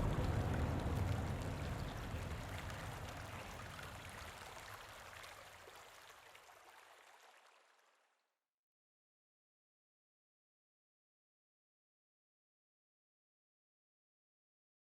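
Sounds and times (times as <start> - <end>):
rushing water: 0.0 - 8.0.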